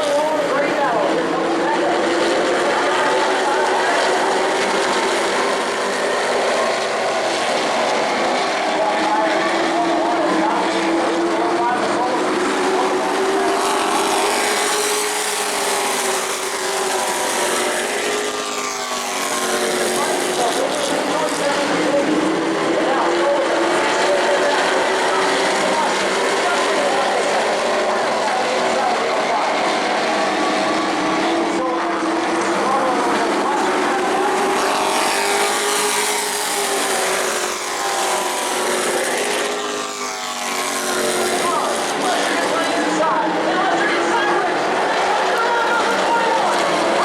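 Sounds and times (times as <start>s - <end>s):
truck engines droning: 0.0s - 47.0s.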